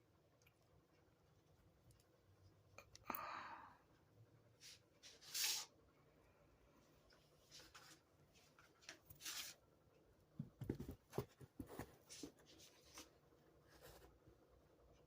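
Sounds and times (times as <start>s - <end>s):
soft taps and scratches: 10.4s - 13.1s.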